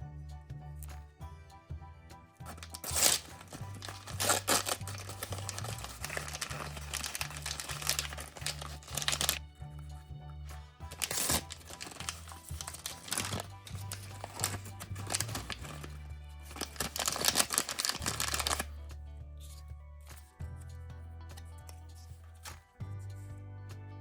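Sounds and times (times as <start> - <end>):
background music with bass: 0.0 - 24.0
plastic wrapping crinkling: 2.5 - 9.4, 10.8 - 18.7.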